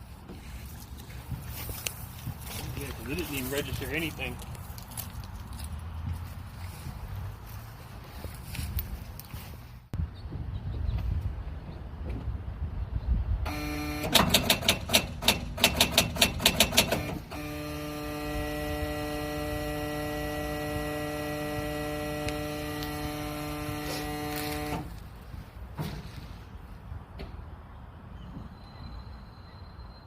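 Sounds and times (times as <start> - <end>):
machine hum: 13.5 - 14.7, 16.7 - 25.0.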